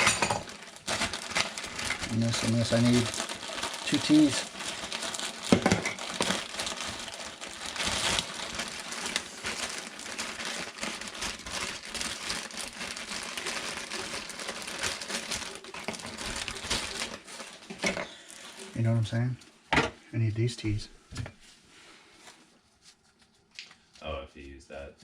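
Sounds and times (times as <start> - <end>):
plastic rustling and crinkling: 0.0 - 19.7.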